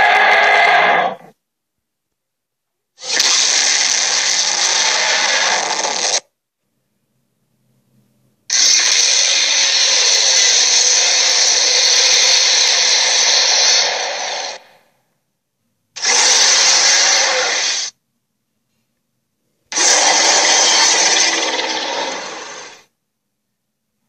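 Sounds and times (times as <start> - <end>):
harsh creature sound effect: 0.0 - 1.4, 3.0 - 6.2, 8.5 - 14.8, 16.0 - 17.9, 19.7 - 22.8.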